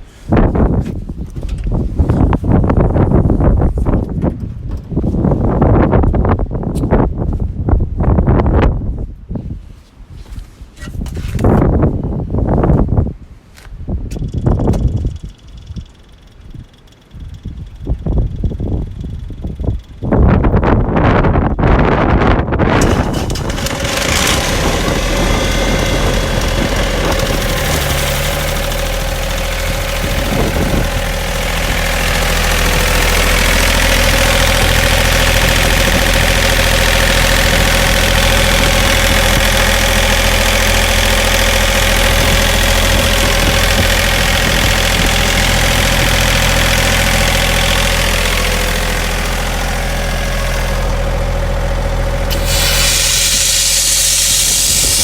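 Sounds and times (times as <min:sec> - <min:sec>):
air compressor engine running: 0:22.6 - 0:55.0
broad hiss: 0:52.3 - 0:55.0.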